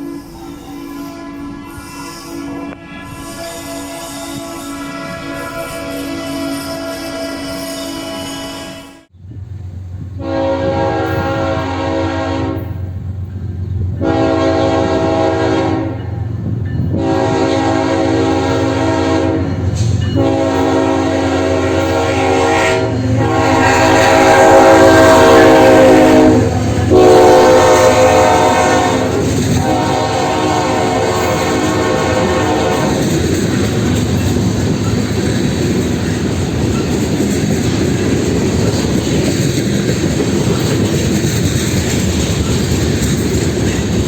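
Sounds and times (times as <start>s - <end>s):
locomotive air horn blasts: 0.0s - 9.1s, 10.2s - 13.0s, 13.9s - 16.2s, 16.9s - 33.2s.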